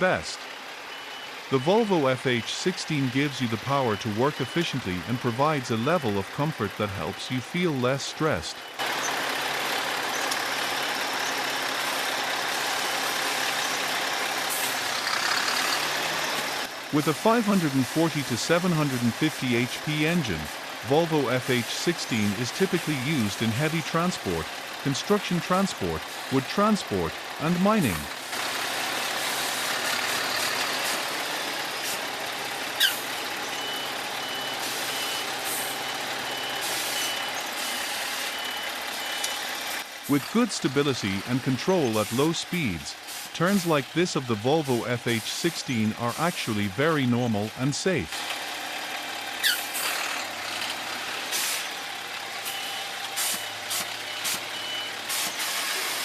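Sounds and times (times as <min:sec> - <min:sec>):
heavy truck engine running: 0:00.0 - 0:56.0
reversing alarm beeps: 0:00.9 - 0:08.8, 0:32.8 - 0:45.0, 0:52.4 - 0:55.9
sharp falling squeal: 0:32.8 - 0:33.9, 0:49.4 - 0:50.0.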